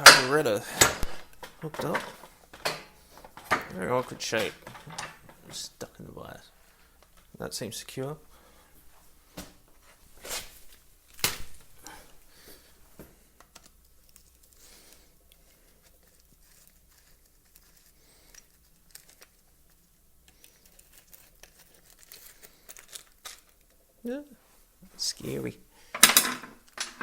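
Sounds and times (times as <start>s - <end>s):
rustling: 8.3s - 27.0s.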